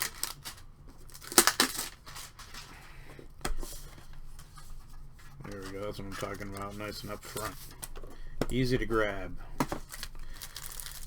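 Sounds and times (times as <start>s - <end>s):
cards scraping in metal tin: 5.4s - 7.9s, 8.5s - 11.0s.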